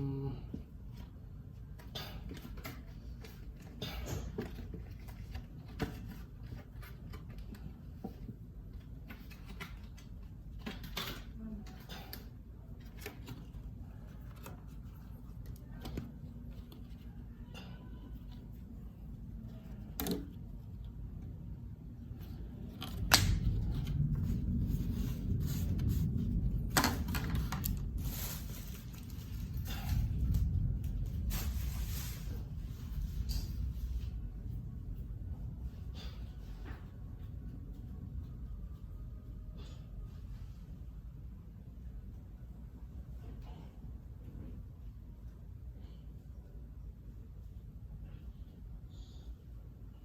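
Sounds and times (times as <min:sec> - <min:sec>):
low rumbling: 0:18.8 - 0:40.3
packaging rustling: 0:22.7 - 0:33.0.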